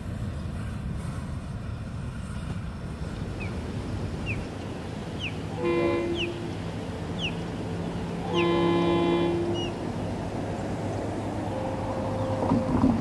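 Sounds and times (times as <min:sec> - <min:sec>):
freight train rumble: 0:00.0 - 0:13.0
bird chirping: 0:06.1 - 0:06.4, 0:07.1 - 0:07.4.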